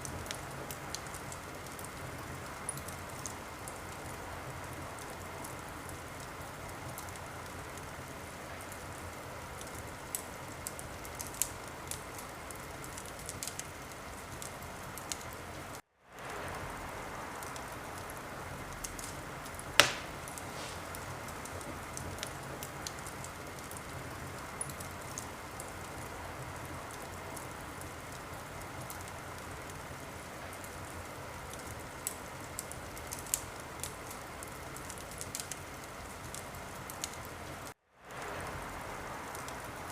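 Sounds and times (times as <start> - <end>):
fire crackling and popping: 0.0 - 39.9
fire hissing: 16.2 - 30.3.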